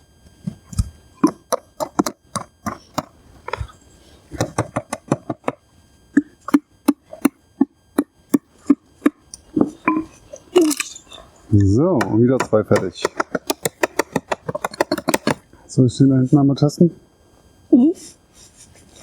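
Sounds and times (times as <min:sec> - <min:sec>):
hammer driving nails into wood: 0:01.2 - 0:03.1, 0:04.4 - 0:05.6, 0:12.0 - 0:15.4.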